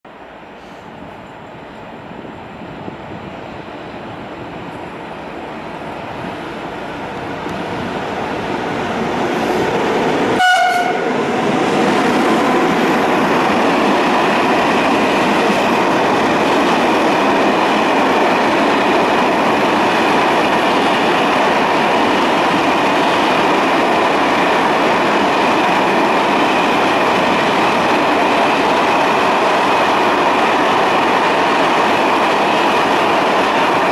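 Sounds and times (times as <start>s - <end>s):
train wheels clattering on rails: 7.4s - 33.9s
train horn blast: 10.4s - 11.1s.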